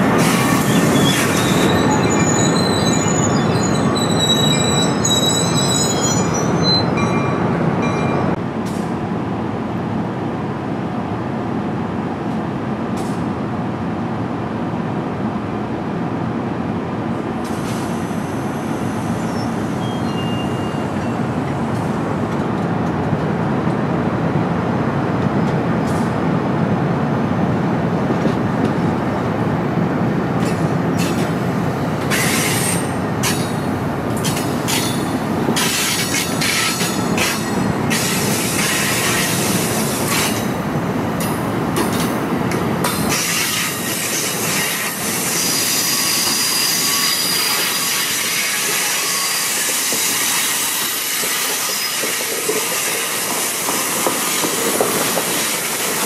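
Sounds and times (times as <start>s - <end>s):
train wheels rumbling on rails: 0.0s - 56.0s
wheels squealing and screeching: 0.2s - 7.0s.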